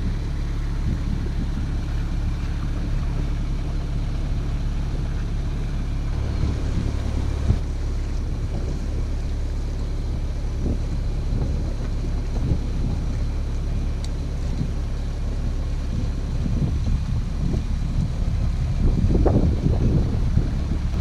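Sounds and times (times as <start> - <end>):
boat engine droning: 0.0 - 21.0
wind buffeting microphone: 0.0 - 21.0.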